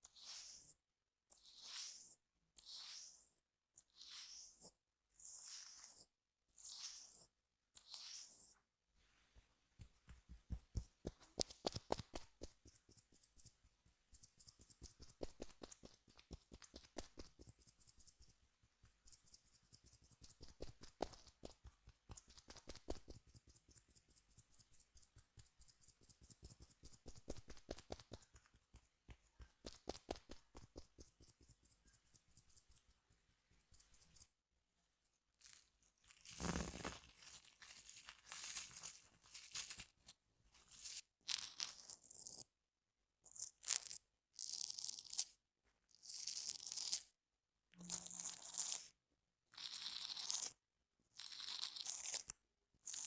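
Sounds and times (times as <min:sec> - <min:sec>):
objects scraping against microphone: 0:36.3 - 0:37.2.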